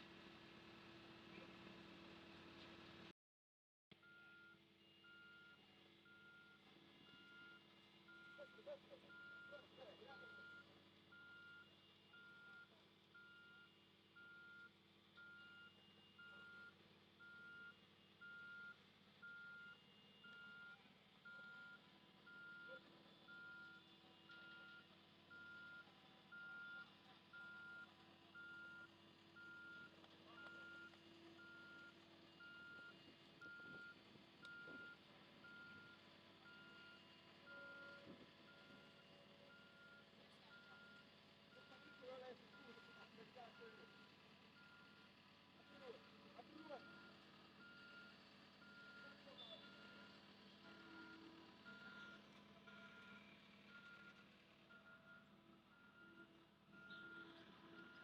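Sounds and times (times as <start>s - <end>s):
reversing alarm beeping: 4.0s - 44.0s, 54.8s - 58.0s.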